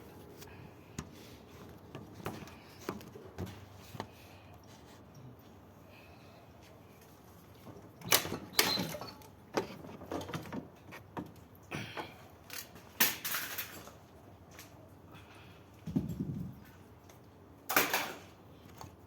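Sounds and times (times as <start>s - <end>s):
clatter of hard objects handled: 12.5s - 14.8s, 15.8s - 18.9s.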